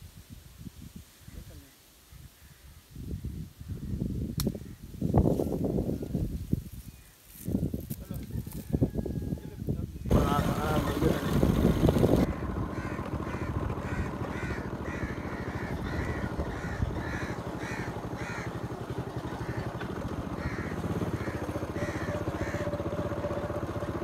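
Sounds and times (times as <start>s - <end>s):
steady low rumble: 10.1s - 19.6s.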